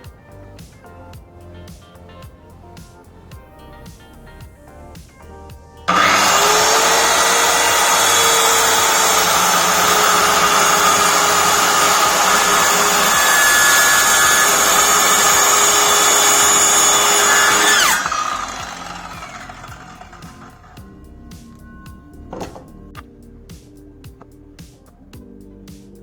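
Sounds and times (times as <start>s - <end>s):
circular saw whining: 5.9s - 20.8s.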